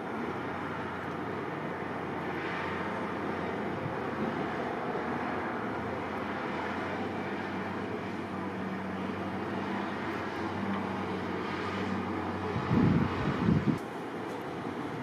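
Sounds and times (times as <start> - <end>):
road noise: 0.0 - 15.0
vehicle engine humming: 0.0 - 15.0
wind rushing: 12.5 - 13.8.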